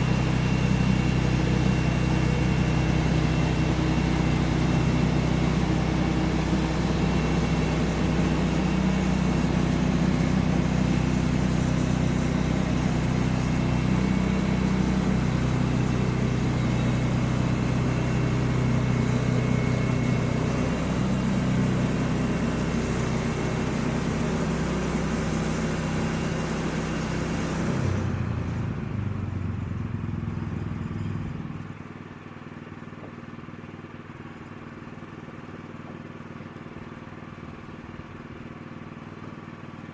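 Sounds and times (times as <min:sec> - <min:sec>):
saw hissing through log: 0:00.0 - 0:28.9
sawmill engine running: 0:00.0 - 0:39.9.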